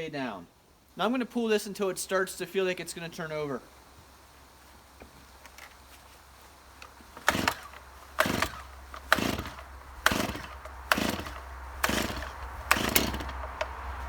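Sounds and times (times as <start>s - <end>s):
chainsaw recoil starter pulls: 6.8s - 13.8s
chainsaw engine turning over: 7.1s - 13.9s.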